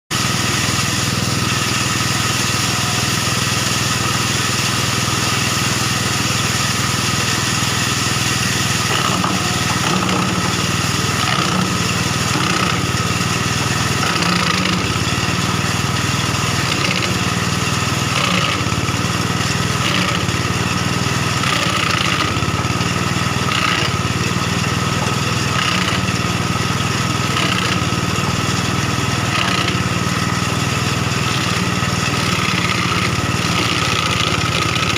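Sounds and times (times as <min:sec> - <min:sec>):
wood crusher engine droning: 0:00.1 - 0:34.9
harsh crushing bursts: 0:07.8 - 0:34.9.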